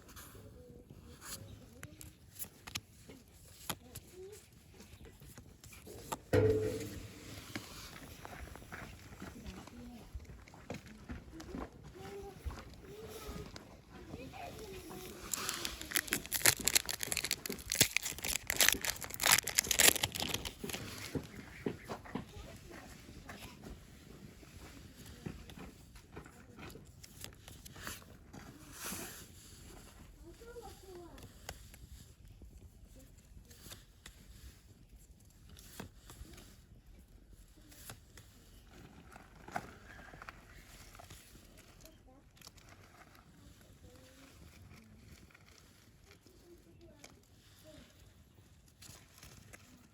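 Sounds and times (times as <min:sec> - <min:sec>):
foil wrapper crinkling and tearing: 0:14.6 - 0:21.4
campfire crackling and popping: 0:15.2 - 0:21.3.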